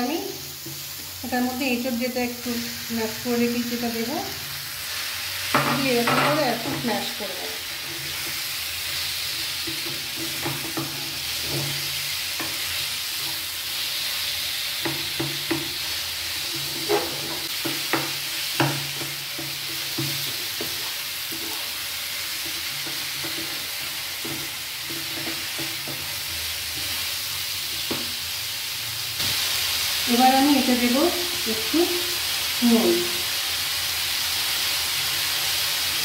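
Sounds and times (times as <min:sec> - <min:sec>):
vegetables sizzling in a frying pan: 0:00.0 - 0:36.0
spatula knocking against pan: 0:09.7 - 0:11.8, 0:14.8 - 0:15.8, 0:16.6 - 0:21.6.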